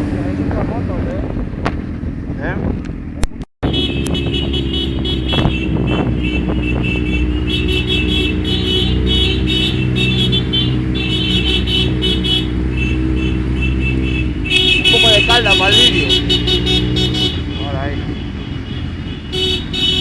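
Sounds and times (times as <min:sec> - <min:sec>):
motorcycle engines running: 0:00.0 - 0:20.0.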